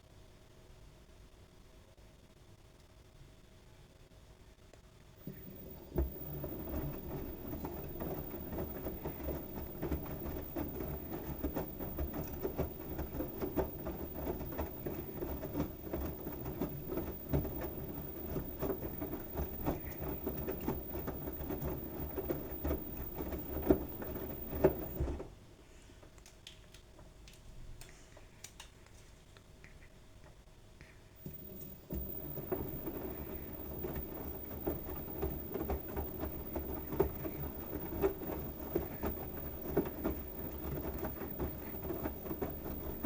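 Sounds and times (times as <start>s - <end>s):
towels tumbling with thumps: 5.2s - 25.4s, 31.2s - 43.0s
washing machine drum rumbling: 5.2s - 25.4s, 31.2s - 43.0s.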